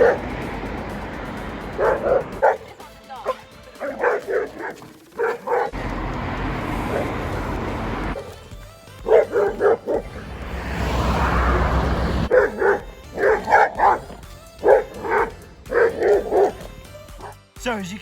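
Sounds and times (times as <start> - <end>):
dog barking: 0.0 - 0.4, 1.6 - 5.8, 6.7 - 8.4, 9.0 - 10.5, 12.2 - 17.4.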